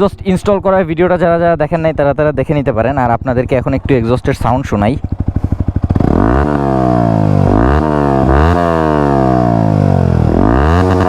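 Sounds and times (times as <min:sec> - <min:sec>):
motorcycle engine idling: 0:00.0 - 0:11.0
motorcycle engine revving: 0:03.1 - 0:11.0.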